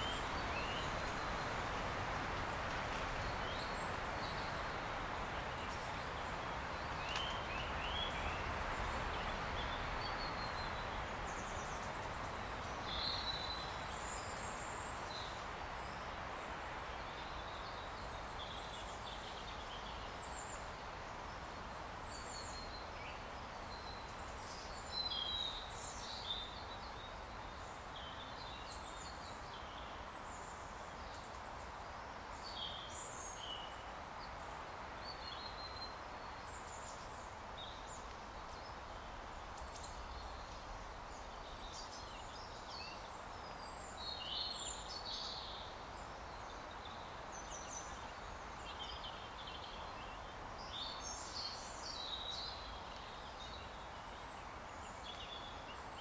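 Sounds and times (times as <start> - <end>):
birds chirping and twittering: 0.0 - 20.6
forest background hiss: 0.0 - 56.0.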